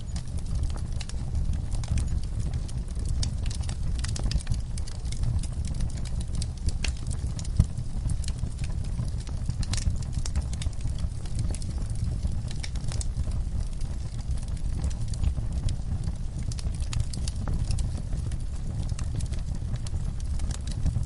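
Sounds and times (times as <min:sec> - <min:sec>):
fire crackling in fireplace: 0:00.0 - 0:21.0.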